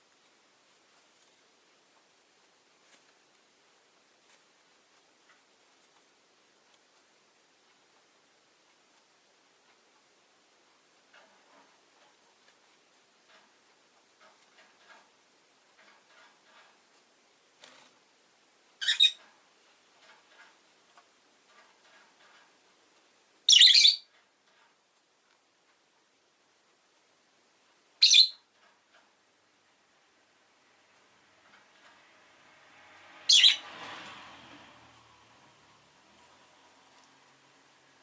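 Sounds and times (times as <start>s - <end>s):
faint steady hiss: 0.0s - 38.0s
lovebirds calling loudly: 18.8s - 19.2s, 23.5s - 24.1s, 28.0s - 28.4s, 33.3s - 33.6s
soft bird chirps: 18.8s - 19.2s, 23.5s - 24.1s, 28.0s - 28.5s, 33.3s - 33.6s.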